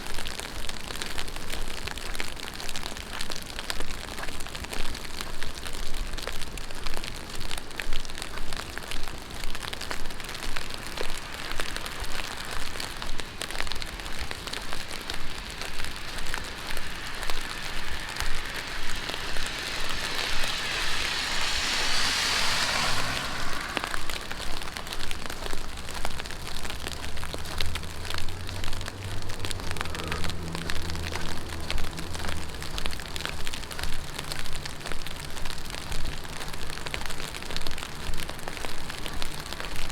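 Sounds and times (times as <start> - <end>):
heavy rain on street: 0.0 - 39.9
tyres hissing on wet road: 0.0 - 39.9
footsteps: 7.4 - 39.9
low engine hum: 9.4 - 39.2.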